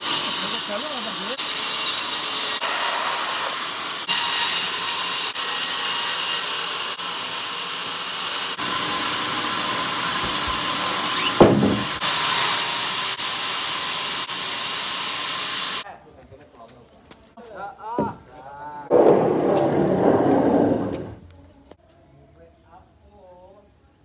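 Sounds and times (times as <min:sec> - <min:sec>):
bandsaw cutting through log: 0:00.0 - 0:15.8.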